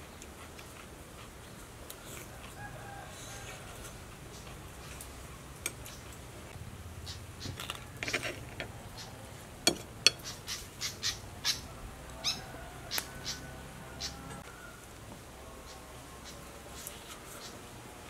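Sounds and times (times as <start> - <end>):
bird chirping: 7.0 - 8.0, 10.0 - 13.4
metal spoon scraping a plate: 7.6 - 8.7, 9.6 - 10.4.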